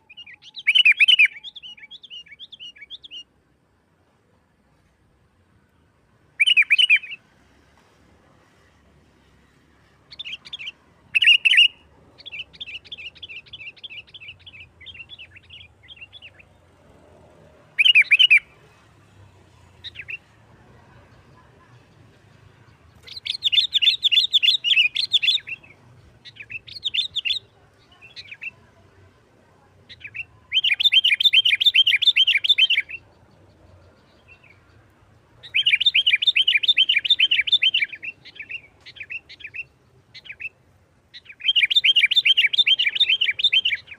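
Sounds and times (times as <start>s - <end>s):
bird chattering trills: 23.0s - 28.6s, 41.2s - 43.9s.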